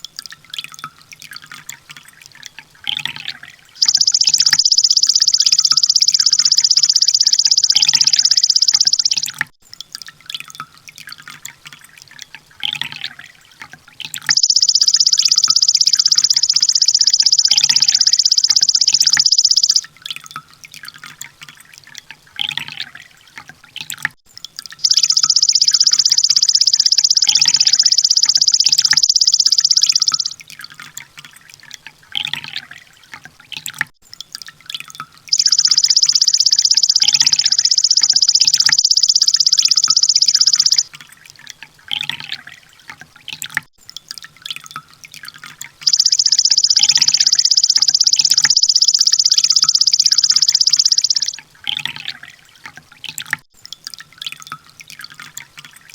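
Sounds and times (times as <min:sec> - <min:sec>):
bird chirps: 0:03.8 - 0:09.4, 0:14.3 - 0:19.8, 0:24.8 - 0:30.4, 0:35.3 - 0:40.9, 0:45.8 - 0:52.1
bird high-pitched trills: 0:03.8 - 0:09.4, 0:14.3 - 0:19.8, 0:24.8 - 0:30.4, 0:35.3 - 0:40.9, 0:45.8 - 0:51.9.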